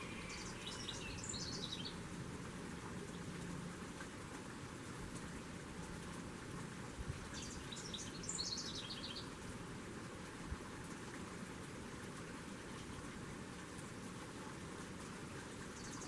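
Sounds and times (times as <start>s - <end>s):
small bird chirping: 0.0s - 2.0s.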